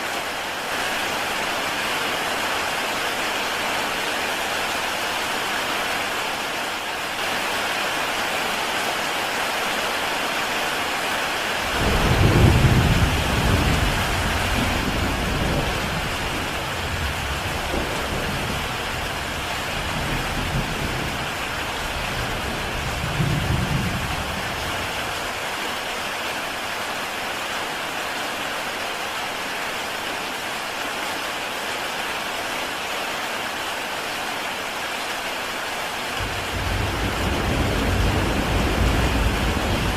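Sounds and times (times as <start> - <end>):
heavy rain on a tile roof: 0.0 - 39.9
thunder rumbling: 11.7 - 24.9, 36.2 - 39.9.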